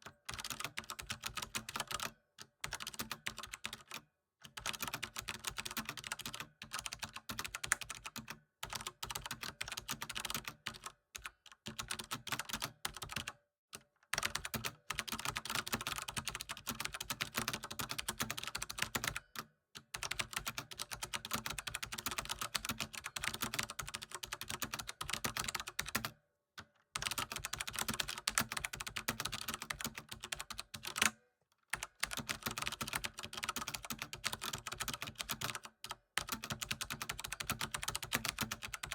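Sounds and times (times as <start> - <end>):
computer keyboard typing: 0.1 - 13.3, 14.1 - 19.4, 20.0 - 26.2, 27.0 - 38.9.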